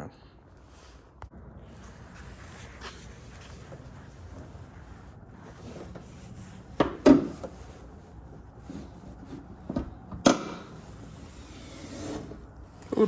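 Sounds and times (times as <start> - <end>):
car parts clicking and knocking: 9.6 - 10.8.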